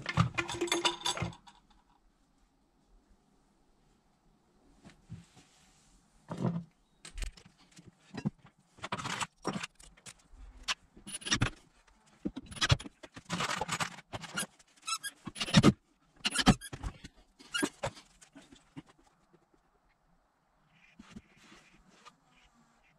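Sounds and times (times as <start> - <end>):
metal tools clanking and rattling: 0.0 - 1.6.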